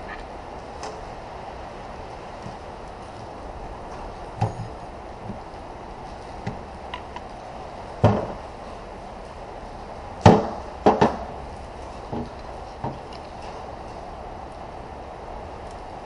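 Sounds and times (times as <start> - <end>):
metal parts knocking and clunking: 2.4 - 5.5.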